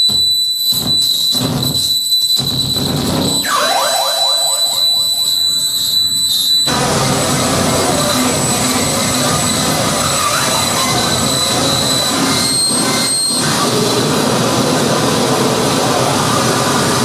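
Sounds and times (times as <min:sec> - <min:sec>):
high whistling tones: 0:00.0 - 0:15.3
harsh noise music: 0:02.4 - 0:06.0.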